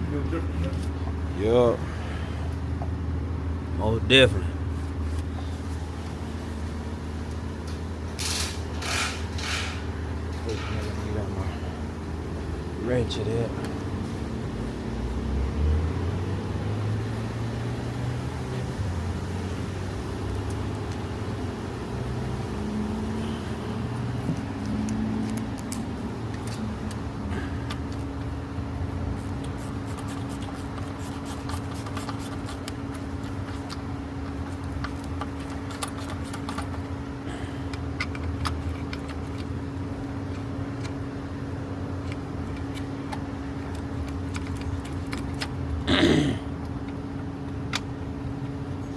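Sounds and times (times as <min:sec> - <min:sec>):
low mechanical hum: 0:00.0 - 0:48.9.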